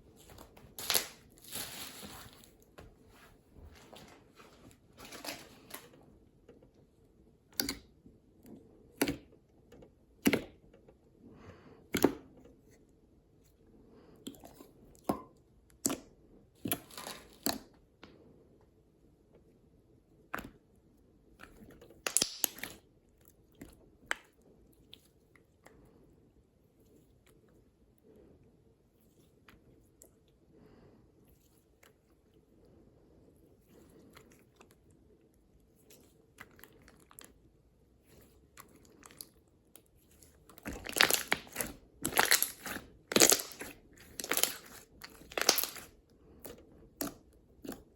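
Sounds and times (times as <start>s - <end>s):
slime squishing: 14.2s - 17.8s, 20.2s - 26.1s, 33.3s - 47.9s.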